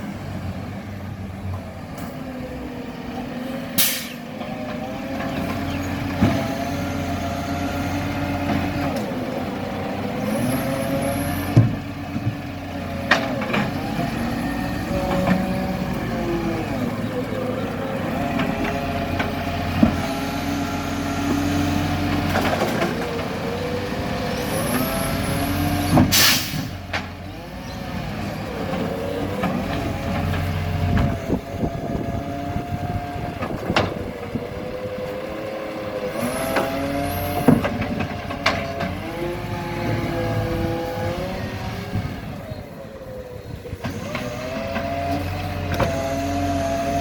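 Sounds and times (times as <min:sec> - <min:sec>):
diesel engine revving: 0:00.0 - 0:47.0
air brake hiss: 0:03.8 - 0:04.3, 0:26.1 - 0:26.8.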